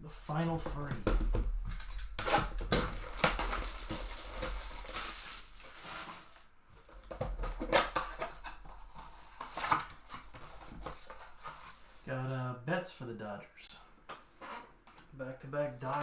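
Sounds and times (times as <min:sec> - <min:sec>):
foil wrappers crinkling and tearing: 0:01.7 - 0:11.8
cards rustling and sliding: 0:07.1 - 0:12.0.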